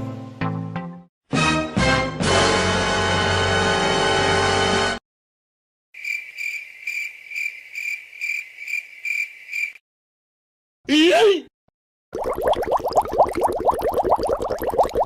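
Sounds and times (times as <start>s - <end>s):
music: 0.0s - 5.0s
crickets chirping: 6.0s - 9.8s.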